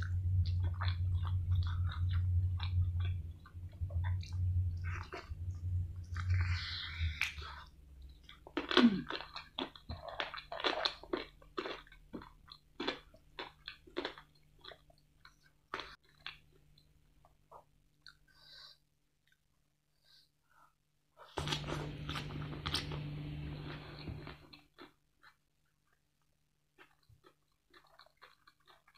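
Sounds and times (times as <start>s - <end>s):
fried chicken crunching: 21.4s - 28.9s.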